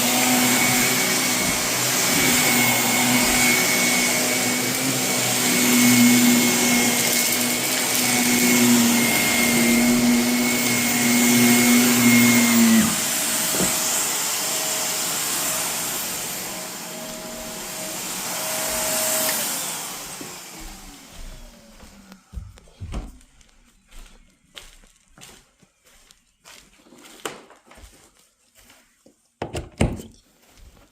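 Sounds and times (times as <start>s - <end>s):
vacuum cleaner motor hum: 0.0s - 23.0s.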